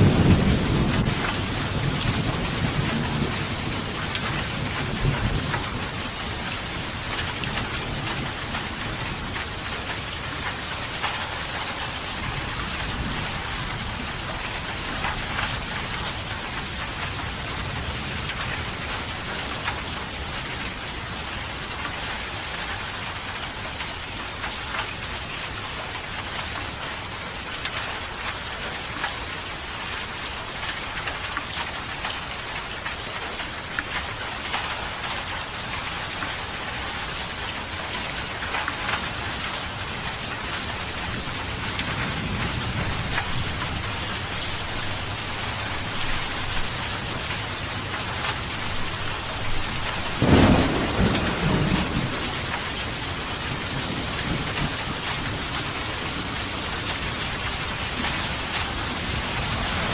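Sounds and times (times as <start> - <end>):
low thunder rumble: 0.0 - 19.9, 38.5 - 59.9
rain falling: 0.0 - 59.9.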